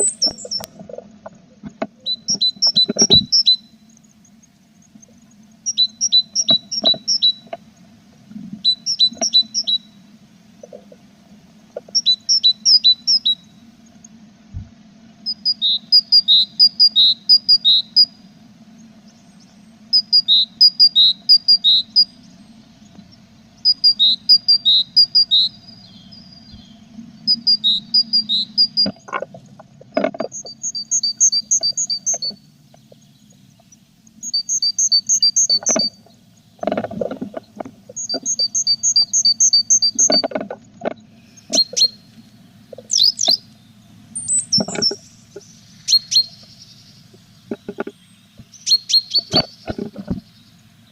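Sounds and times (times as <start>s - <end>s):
birds chirping: 0.0s - 1.0s, 1.6s - 14.2s, 15.2s - 50.9s
faint steady low hum: 0.0s - 50.9s
scratching and knocking thumps: 28.9s - 30.5s, 36.6s - 38.2s, 47.1s - 48.5s, 49.2s - 50.3s.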